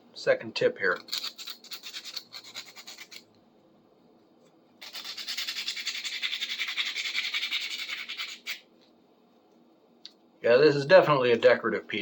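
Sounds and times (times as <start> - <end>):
sandpaper rubbing on metal: 1.1 - 3.2, 4.8 - 8.6.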